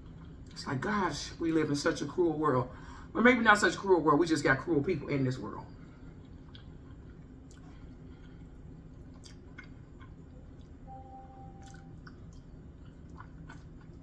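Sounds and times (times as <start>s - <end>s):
low room hum: 0.0s - 14.0s
faint chewing: 6.0s - 10.8s, 11.5s - 14.0s
wet mouth clicks: 11.6s - 12.5s.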